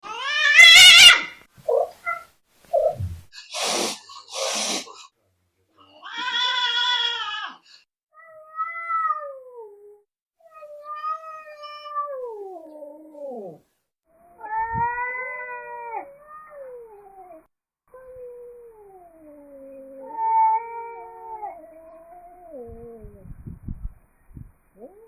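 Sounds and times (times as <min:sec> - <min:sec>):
cats yowling: 0:00.0 - 0:02.9, 0:05.8 - 0:07.6, 0:08.2 - 0:13.6, 0:14.2 - 0:23.1
cat hissing: 0:00.3 - 0:05.1.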